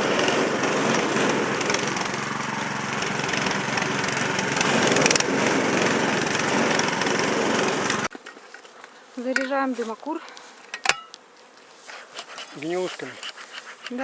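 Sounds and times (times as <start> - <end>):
small motor running: 0.0 - 8.1, 11.9 - 14.0.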